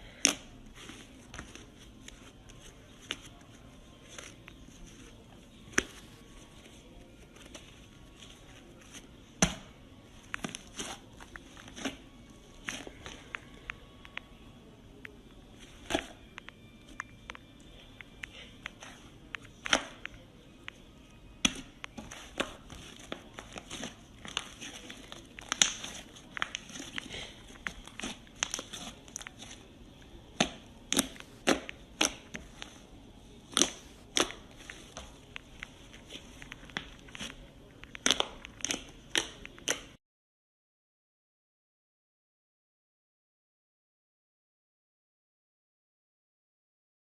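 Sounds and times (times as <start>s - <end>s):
slime crackling and popping: 21.4s - 29.6s, 33.4s - 40.0s.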